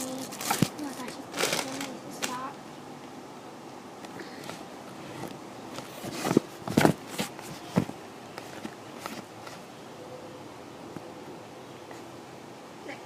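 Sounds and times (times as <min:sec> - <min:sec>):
handling knocks and scrapes: 0:04.5 - 0:09.7.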